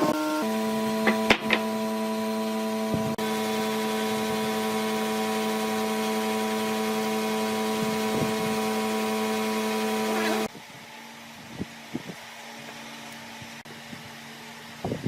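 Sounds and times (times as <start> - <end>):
power tool motor hum: 0.0 - 10.5.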